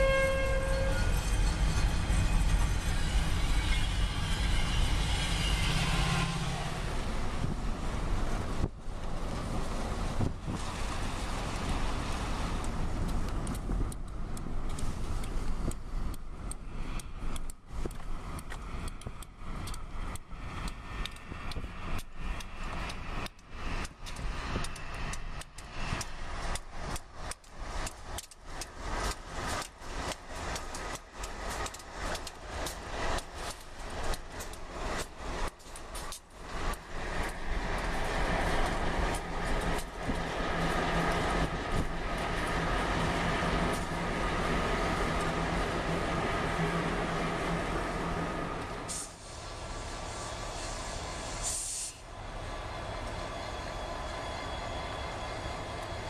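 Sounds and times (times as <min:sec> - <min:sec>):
freight car wheels clicking: 0:10.2 - 0:47.7.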